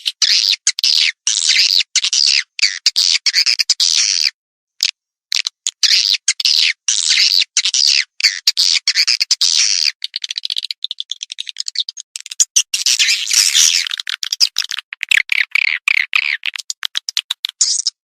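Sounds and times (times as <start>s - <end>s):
dry clicking twitters: 8.2s - 18.0s.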